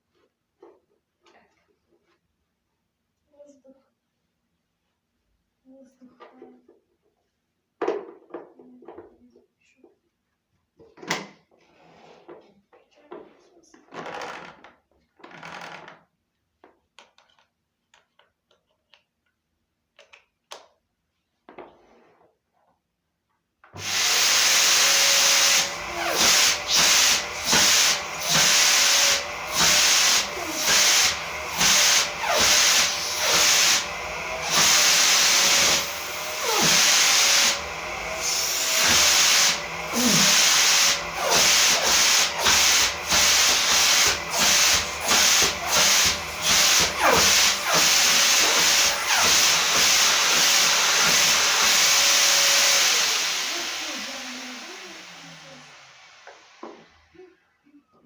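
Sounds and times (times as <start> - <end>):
vacuum cleaner running: 23.8 - 57.3.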